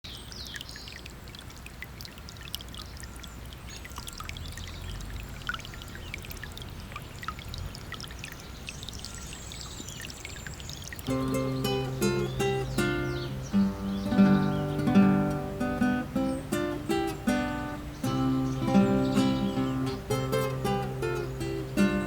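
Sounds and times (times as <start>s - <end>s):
river water running: 0.0s - 22.0s
chirps: 2.8s - 22.0s
short high splashes: 9.8s - 22.0s.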